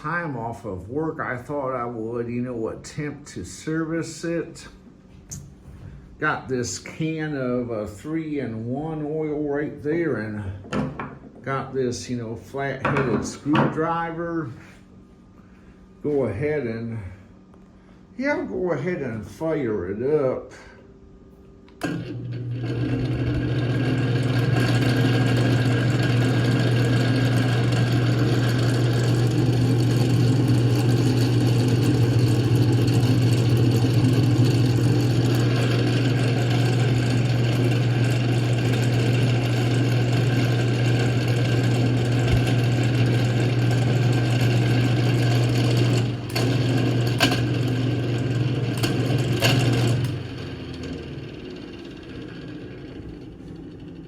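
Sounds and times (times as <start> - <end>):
electric fan motor humming: 0.0 - 54.0
fan sharp clicks: 42.1 - 51.0.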